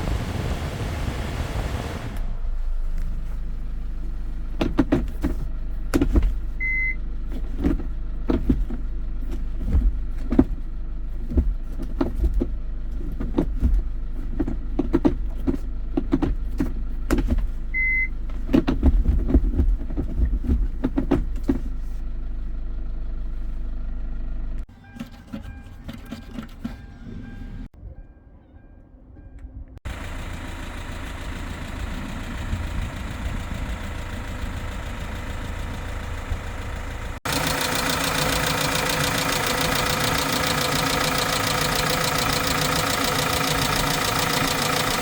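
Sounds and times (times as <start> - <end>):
truck engine idling: 29.9 - 45.0.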